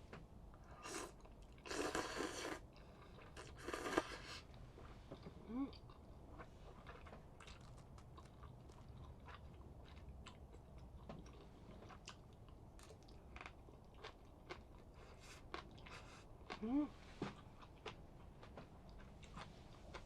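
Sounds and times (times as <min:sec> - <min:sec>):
person chewing and eating: 0:00.6 - 0:04.5, 0:05.2 - 0:20.0
person humming: 0:16.6 - 0:16.9.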